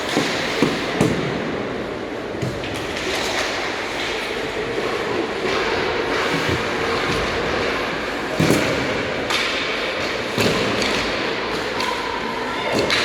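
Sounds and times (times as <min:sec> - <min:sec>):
hockey sticks and puck knocking: 0:00.0 - 0:01.4, 0:08.3 - 0:12.0, 0:12.7 - 0:13.0
skates scraping on ice: 0:03.0 - 0:12.0.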